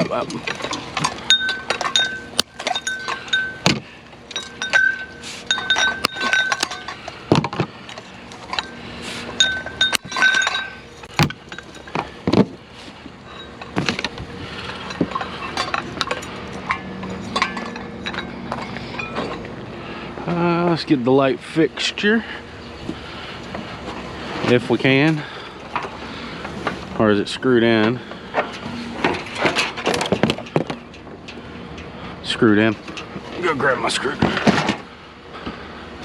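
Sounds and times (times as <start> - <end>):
glass and metal clinking: 0.0 - 19.6.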